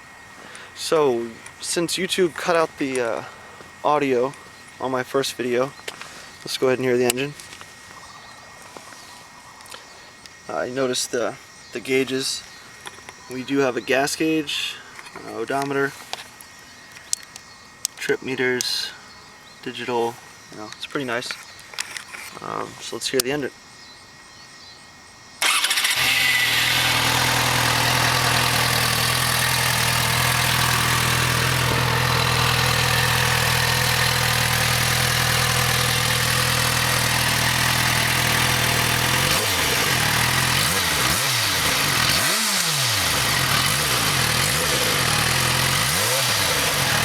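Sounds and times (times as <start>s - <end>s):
motorcycle engine starting and idling: 25.4s - 47.0s.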